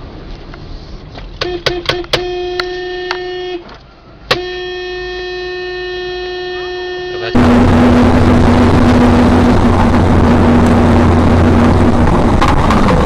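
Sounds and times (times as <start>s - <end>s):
engine and road noise: 0.0s - 13.0s
car horn honking: 1.4s - 3.7s, 4.3s - 9.2s.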